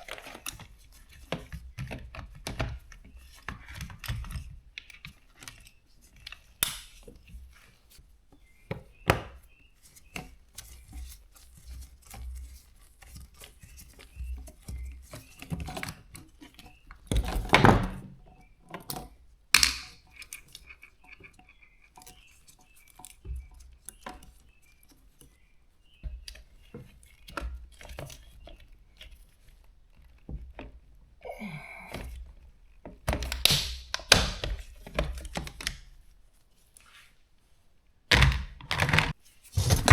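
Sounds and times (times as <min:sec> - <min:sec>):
tools thunking and scraping on parts: 0:38.1 - 0:39.9.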